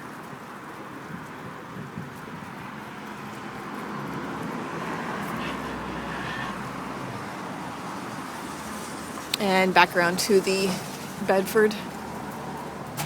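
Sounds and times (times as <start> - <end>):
car passing by: 0.5 - 13.0.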